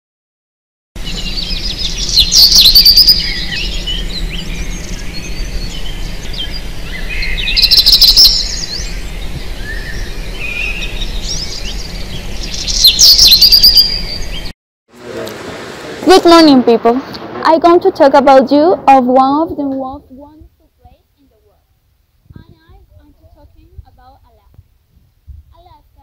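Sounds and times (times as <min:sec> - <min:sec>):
steady low hum: 0:01.0 - 0:07.7, 0:08.4 - 0:12.8
birds chirping and singing: 0:01.0 - 0:14.5.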